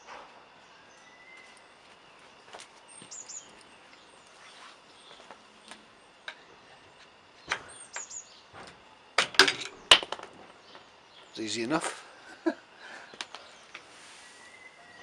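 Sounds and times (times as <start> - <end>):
bird chirping: 2.3 - 5.3, 6.7 - 8.6.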